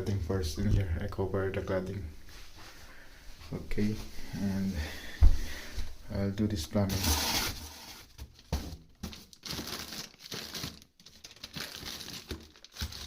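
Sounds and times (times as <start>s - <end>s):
packaging crinkling and rustling: 6.9s - 13.0s.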